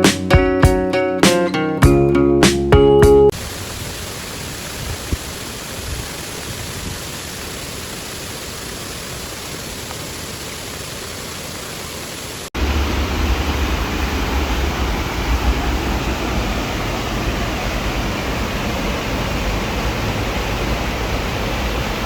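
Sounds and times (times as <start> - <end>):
waterfall rushing: 3.3 - 22.0
deep rumble: 12.6 - 21.8.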